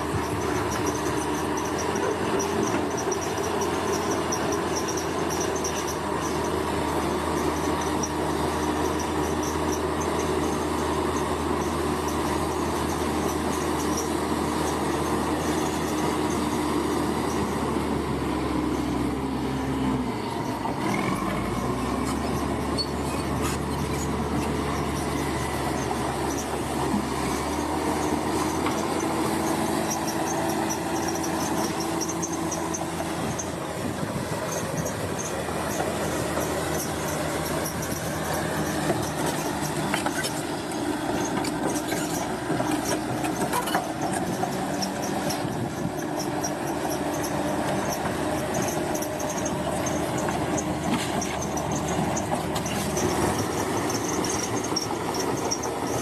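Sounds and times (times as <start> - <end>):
bulldozer diesel engine running: 0.0 - 56.0
metallic clatter of steel tracks: 20.5 - 56.0.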